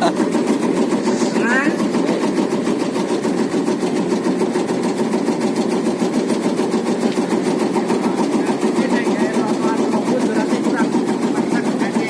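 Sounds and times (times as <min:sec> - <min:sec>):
cutting machine clatter: 0:00.0 - 0:12.0.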